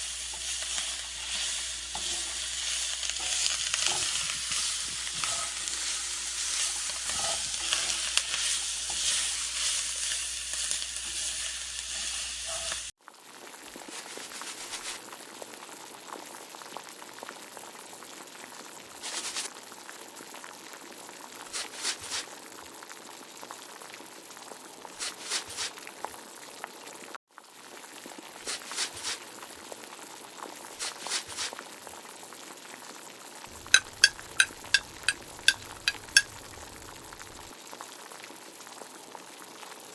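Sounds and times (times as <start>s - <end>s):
stirring strokes in a pan: 0.0s - 16.8s, 18.3s - 23.6s, 24.4s - 26.9s, 27.9s - 32.0s, 33.5s - 37.6s
vegetables sizzling in oil: 0.0s - 39.9s
sharp ringing taps: 33.6s - 37.4s.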